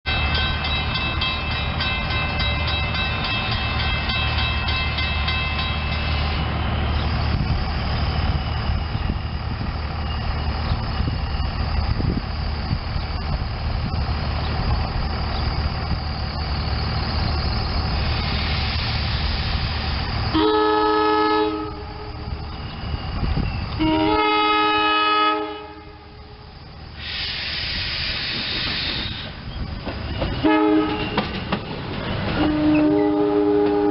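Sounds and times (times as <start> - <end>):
train low rumble: 0.1 - 33.9
train whine: 0.1 - 33.9
train horn blasts: 20.3 - 22.4, 23.8 - 26.4, 30.4 - 31.2, 32.4 - 33.9.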